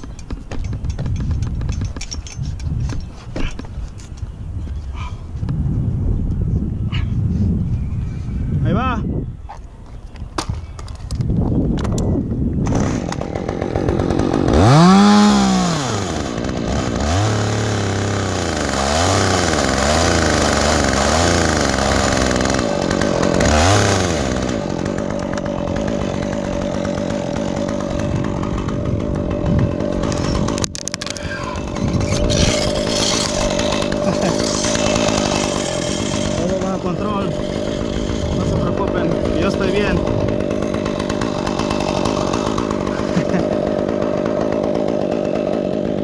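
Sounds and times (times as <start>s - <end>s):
chainsaw revving: 12.6s - 46.0s.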